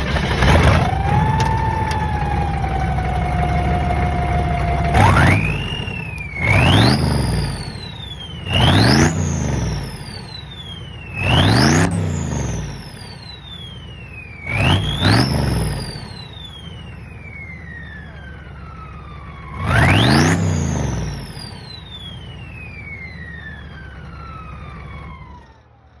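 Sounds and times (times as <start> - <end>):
diesel engine idling and revving: 0.0 - 26.0
turbo whistle: 0.8 - 16.9.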